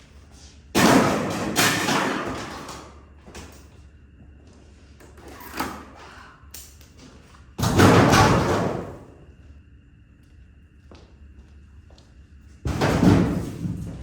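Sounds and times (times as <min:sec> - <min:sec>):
metal scrap clattering into truck bed: 0:00.8 - 0:02.8.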